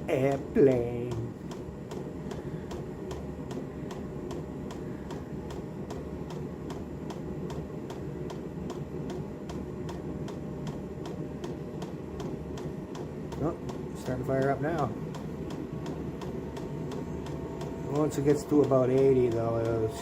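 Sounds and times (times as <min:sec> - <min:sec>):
heater fan and burner hum: 0:00.0 - 0:20.0
fuel pump ticking: 0:15.1 - 0:20.0.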